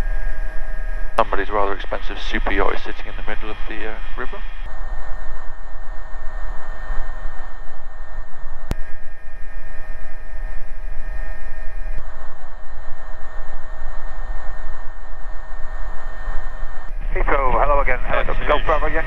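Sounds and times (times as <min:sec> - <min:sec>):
faint tones: 0:00.0 - 0:19.0
helicopter rotor and engine drone: 0:00.0 - 0:19.0.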